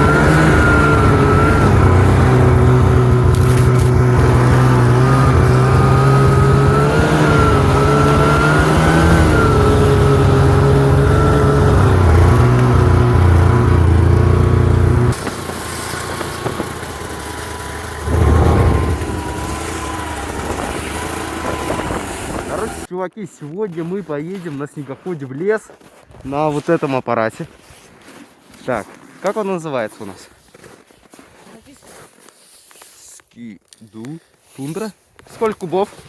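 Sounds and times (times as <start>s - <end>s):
snowmobile engine revving: 0.0s - 22.9s.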